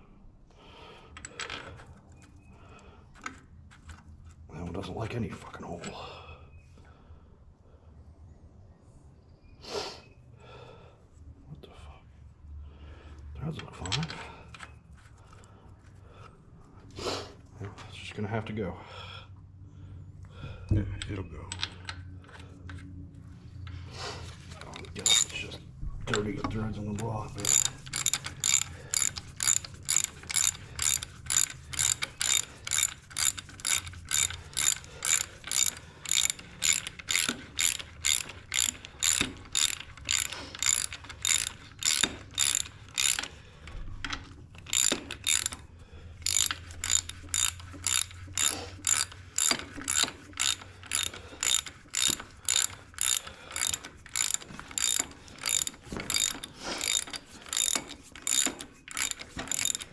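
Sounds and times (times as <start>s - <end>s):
ratchet wrench clicking: 24.6s - 43.4s, 44.2s - 59.9s.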